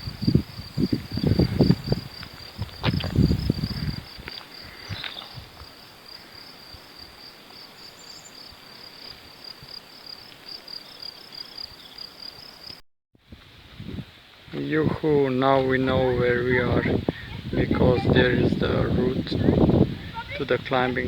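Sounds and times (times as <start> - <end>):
insect chirping: 0.0 - 12.8.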